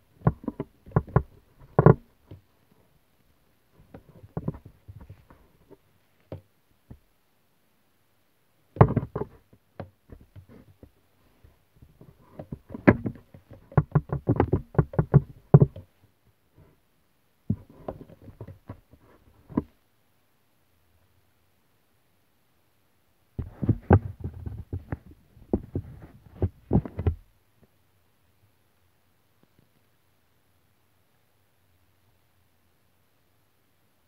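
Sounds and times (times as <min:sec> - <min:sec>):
knocking and tapping: 0:00.2 - 0:02.4, 0:08.8 - 0:10.6, 0:12.0 - 0:15.9.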